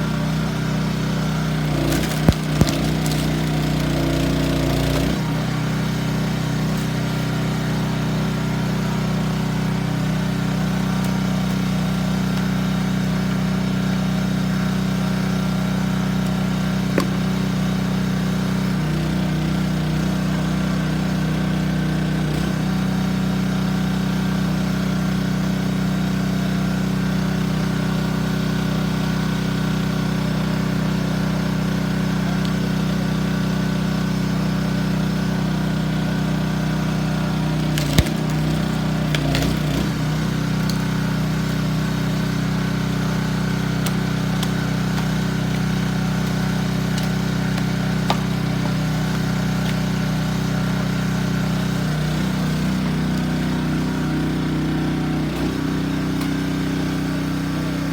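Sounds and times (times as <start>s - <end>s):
small gasoline engine running: 0.0s - 57.9s
log splitting crack: 1.4s - 21.0s, 35.7s - 57.5s
wood splintering cracks: 1.5s - 7.8s, 14.5s - 19.2s, 36.6s - 57.0s.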